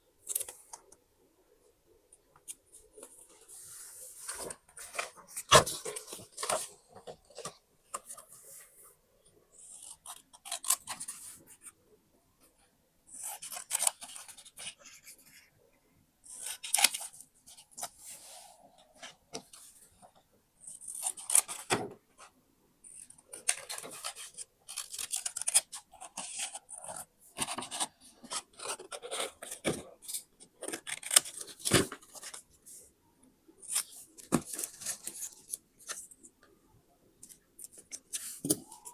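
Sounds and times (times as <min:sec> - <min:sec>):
paper rustling: 0:02.8 - 0:08.7
scissors snipping paper: 0:23.4 - 0:26.9, 0:30.6 - 0:31.8.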